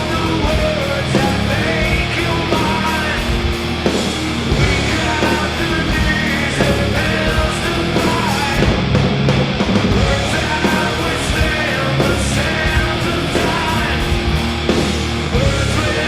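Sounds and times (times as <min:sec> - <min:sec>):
live metal band playing: 0:00.0 - 0:16.0.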